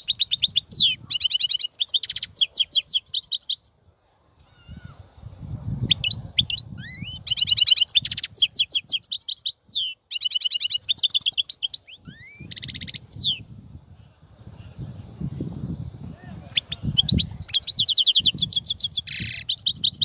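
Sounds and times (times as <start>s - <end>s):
goldfinch twittering song: 0.0s - 3.8s, 5.8s - 13.5s, 16.5s - 20.0s.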